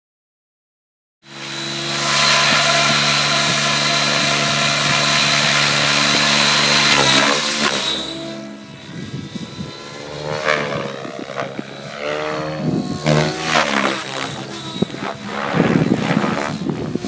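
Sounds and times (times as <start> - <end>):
electric helicopter motor whining: 1.3 - 17.0.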